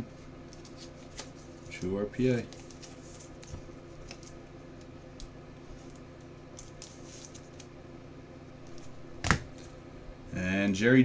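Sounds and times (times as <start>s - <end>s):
cards rustling and clicking: 0.5s - 7.7s.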